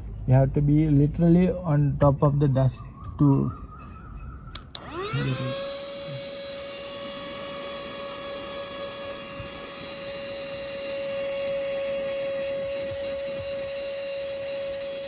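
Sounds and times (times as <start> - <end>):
mini vacuum cleaner motor whine: 4.6 - 15.0.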